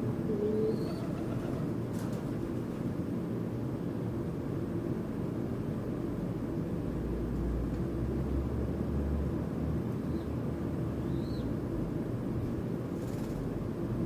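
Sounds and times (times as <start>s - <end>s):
faint bird chirps: 0.4s - 1.2s.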